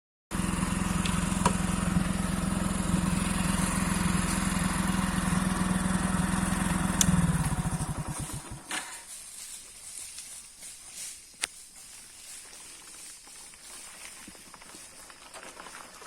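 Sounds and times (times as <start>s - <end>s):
small engine idling: 0.3s - 9.2s
sharp clicks: 7.0s - 7.2s.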